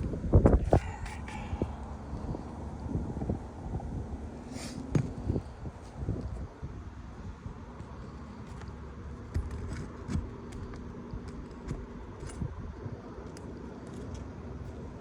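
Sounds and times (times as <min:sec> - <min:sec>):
low steady rumble: 0:00.0 - 0:15.0
pry bar clicking and scraping: 0:07.8 - 0:14.4.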